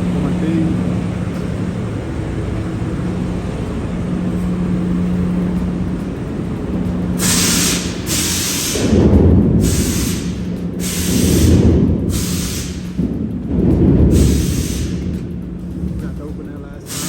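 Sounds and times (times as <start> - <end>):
low rumble: 0.0 - 17.0
truck idling: 0.0 - 17.0
hissing air bursts: 7.1 - 13.0, 14.1 - 15.2.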